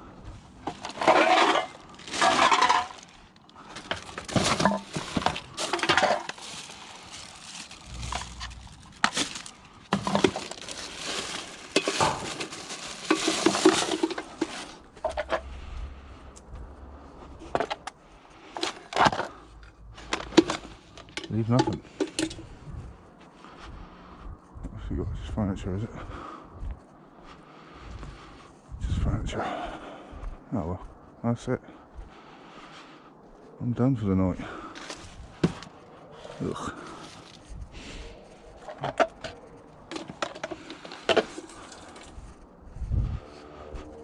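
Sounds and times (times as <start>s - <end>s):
scrap metal clattering: 0.6s - 15.4s, 38.6s - 42.2s.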